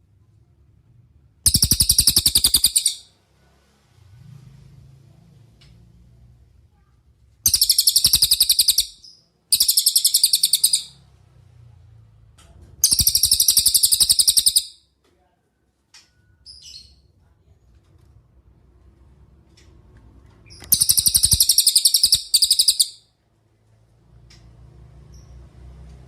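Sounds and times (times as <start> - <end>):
songbird high-pitched trills: 1.5 - 3.1, 7.5 - 11.0, 12.8 - 14.8, 20.7 - 23.0.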